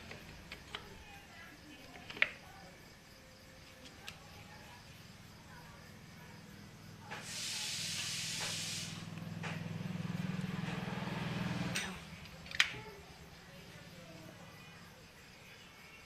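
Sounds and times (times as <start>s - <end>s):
loud hiss: 7.1s - 9.2s.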